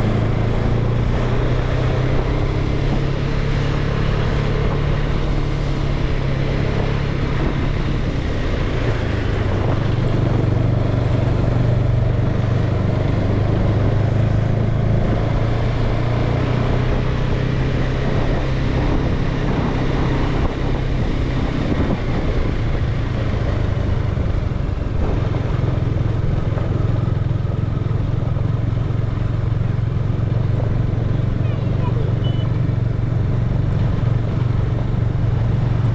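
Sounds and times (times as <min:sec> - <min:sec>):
motorcycle engine running: 0:00.0 - 0:35.9
wind and road noise: 0:00.0 - 0:35.9.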